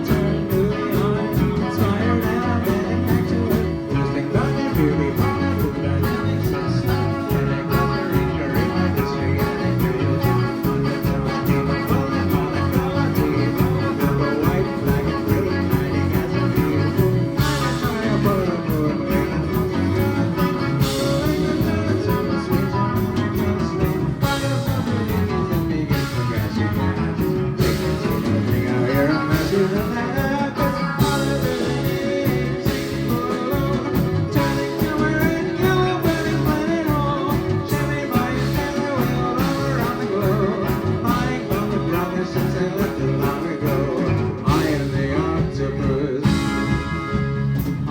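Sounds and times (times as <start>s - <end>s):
rock band playing: 0.0s - 47.9s.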